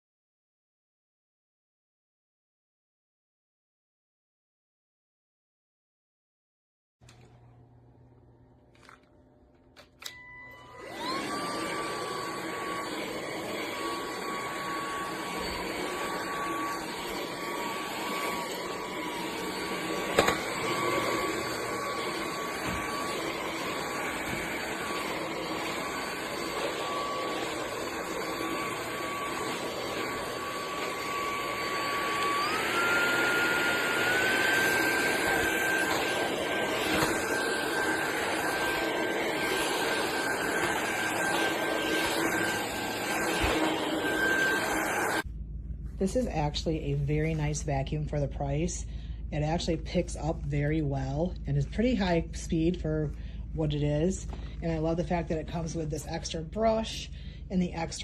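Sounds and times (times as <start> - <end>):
vacuum motor whine: 9.8 - 45.3.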